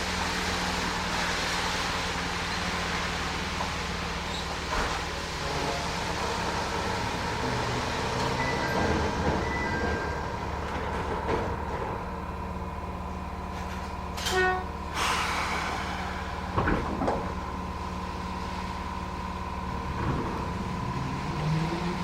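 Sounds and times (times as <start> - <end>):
train wheels on rails: 0.1 - 18.8
train horn blast: 5.1 - 9.1, 14.2 - 14.8
low rising tone: 5.1 - 10.5.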